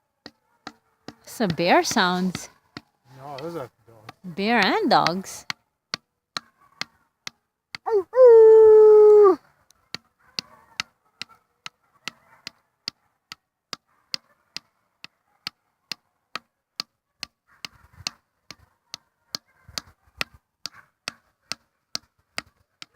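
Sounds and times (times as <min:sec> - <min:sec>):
dog howling: 0:07.9 - 0:09.4.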